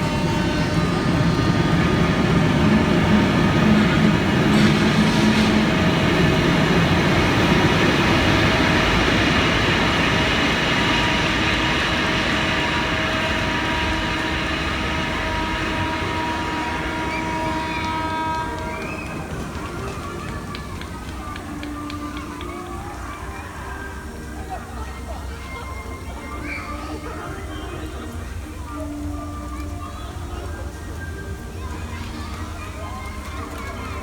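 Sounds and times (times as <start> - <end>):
long squealing tones: 5.5 - 19.4.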